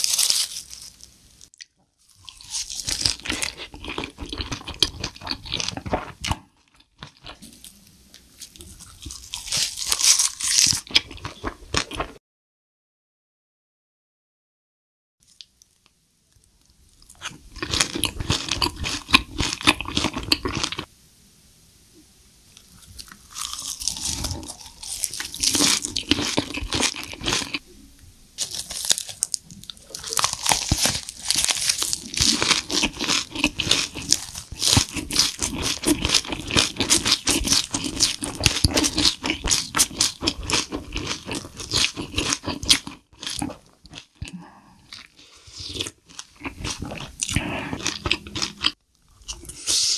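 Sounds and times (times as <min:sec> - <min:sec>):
wet chewing and crunching: 0:00.0 - 0:12.2, 0:17.0 - 0:20.9, 0:22.8 - 0:27.6, 0:28.4 - 0:49.9.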